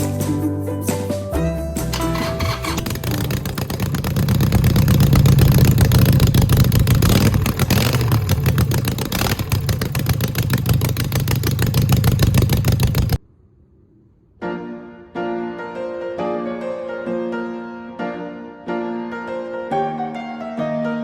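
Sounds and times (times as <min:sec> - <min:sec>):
motorcycle engine running: 0:01.9 - 0:13.2.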